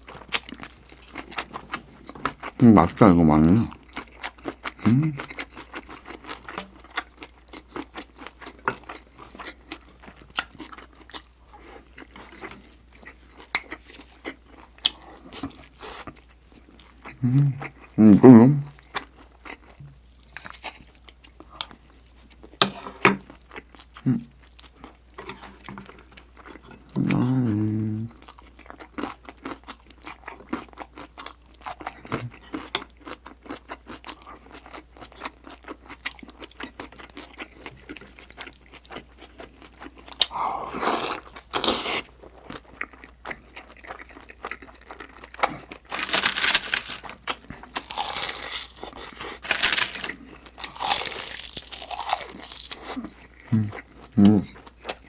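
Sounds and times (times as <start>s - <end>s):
chewing and crunching food: 0.0s - 55.0s.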